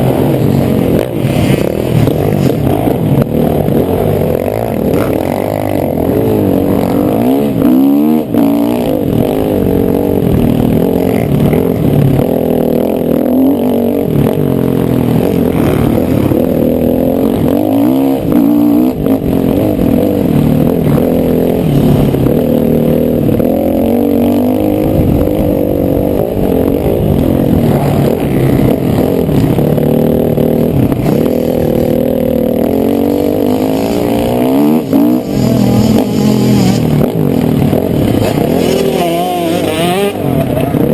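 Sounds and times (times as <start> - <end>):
motocross bike engine revving: 0.0 - 40.9.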